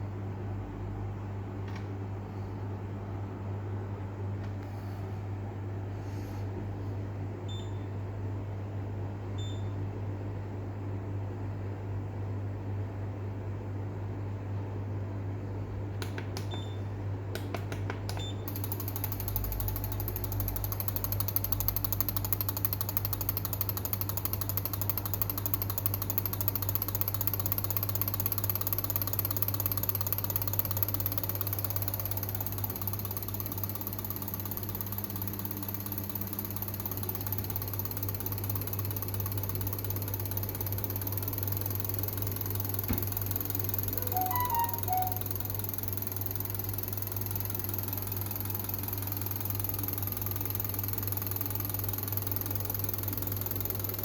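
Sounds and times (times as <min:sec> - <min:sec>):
fast mechanical ticking: 0:18.5 - 0:54.0.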